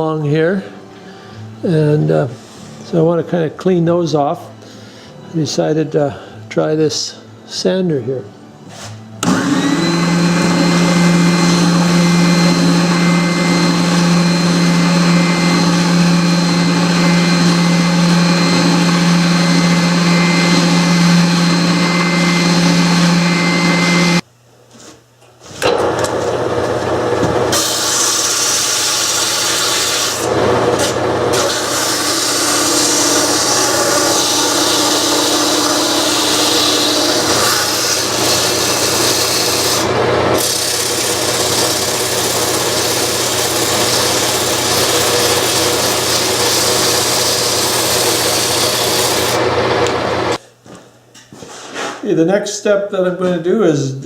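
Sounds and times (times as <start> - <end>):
electric sander humming: 9.2 - 24.2, 25.8 - 50.4
machine abrading wood scratchily: 9.6 - 24.2, 25.8 - 50.4.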